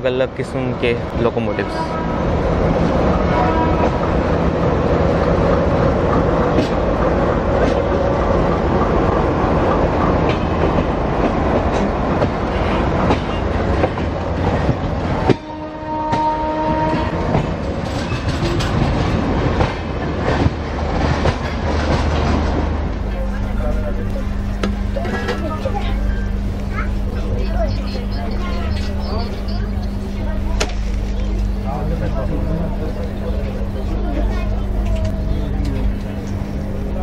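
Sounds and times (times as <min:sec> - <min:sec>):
train rumble: 0:00.0 - 0:37.0
train wheels clattering over rail joints: 0:16.1 - 0:23.4.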